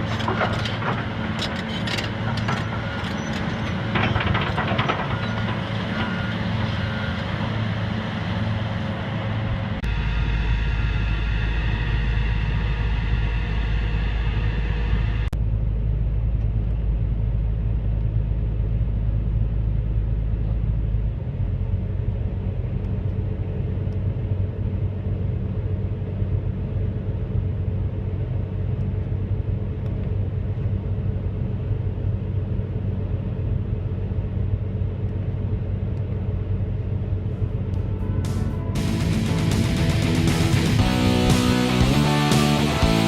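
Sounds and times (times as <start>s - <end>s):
diesel engine rumbling: 0.0s - 43.0s
higher-pitched machine sound: 37.8s - 43.0s.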